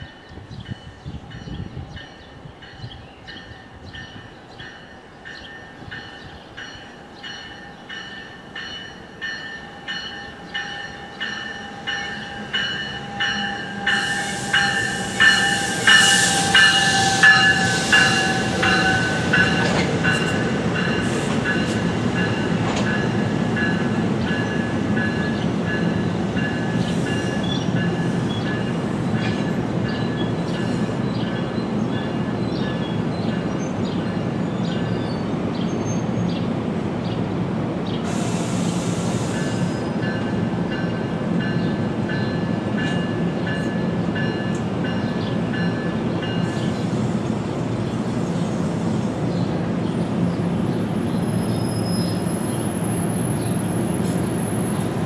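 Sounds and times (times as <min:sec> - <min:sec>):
train bell ringing: 0:00.0 - 0:34.2, 0:39.4 - 0:46.8
train coaches rumbling past: 0:00.0 - 0:55.0
hiss: 0:14.0 - 0:18.2, 0:38.0 - 0:39.8.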